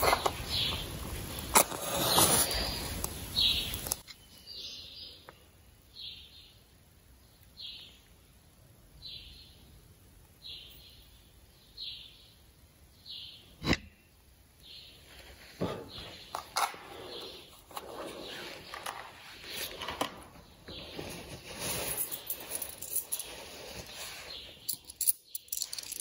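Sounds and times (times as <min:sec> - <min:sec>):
rustling and handling noise: 0:00.0 - 0:04.4, 0:14.9 - 0:26.0.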